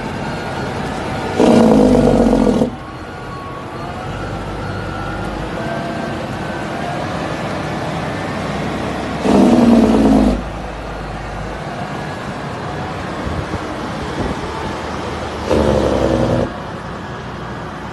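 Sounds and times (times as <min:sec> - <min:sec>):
dump truck engine accelerating: 0:00.0 - 0:17.9
loud horn blast: 0:01.4 - 0:02.8, 0:09.2 - 0:10.5, 0:15.4 - 0:16.5.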